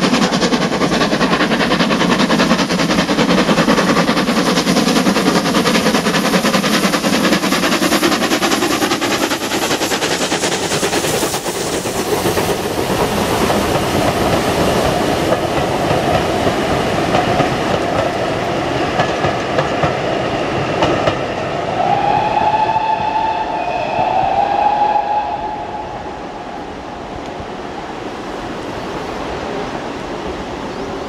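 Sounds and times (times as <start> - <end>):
train coaches clickety-clack: 0.0 - 27.7
drawn-out high tone: 21.8 - 27.0.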